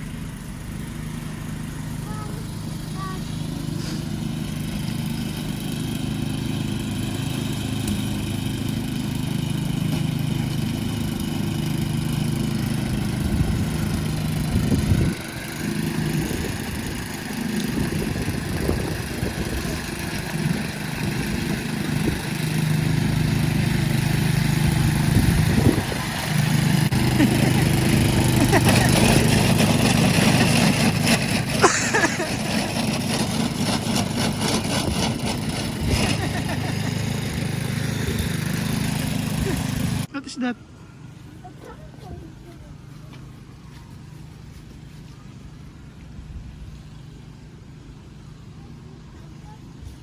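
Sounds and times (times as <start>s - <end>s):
engine humming: 0.0s - 50.0s.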